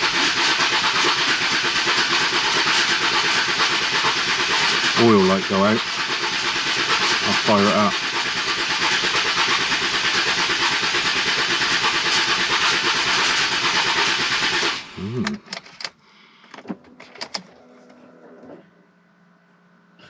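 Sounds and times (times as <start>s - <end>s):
engine cranking on starter motor: 0.0s - 18.6s
sharp clicks: 15.2s - 17.5s.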